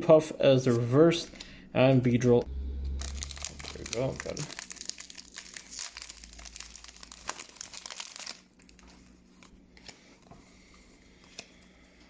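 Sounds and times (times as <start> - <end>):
foil wrapper crinkling: 3.0 - 10.2.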